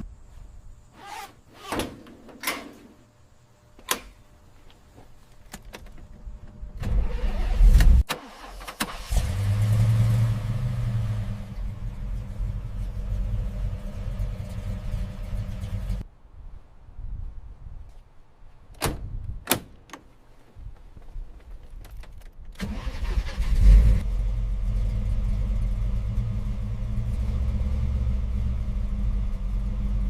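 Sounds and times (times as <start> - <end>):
car engine idling: 9.4 - 16.0, 24.1 - 30.0.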